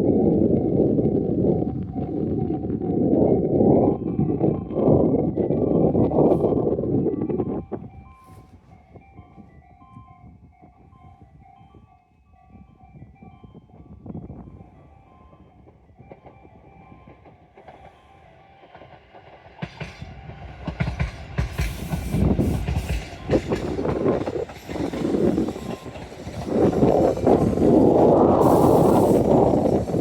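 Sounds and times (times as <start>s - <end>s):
train rumble: 0.0s - 11.8s, 12.4s - 30.0s
wheels clattering over rail joints: 15.0s - 30.0s.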